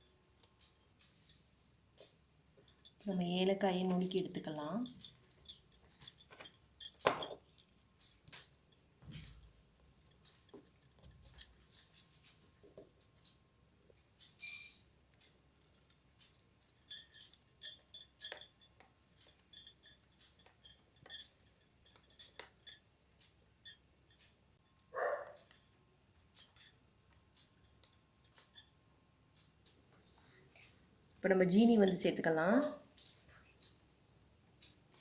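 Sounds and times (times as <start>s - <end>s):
tiny utensil clinking on metal pot: 4.2s - 7.9s, 16.8s - 22.9s, 31.6s - 32.8s.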